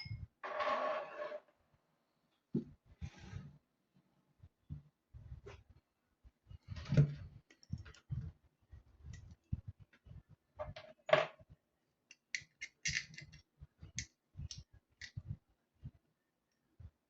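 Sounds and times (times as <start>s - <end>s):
small parts clicking and knocking: 12.1s - 15.2s.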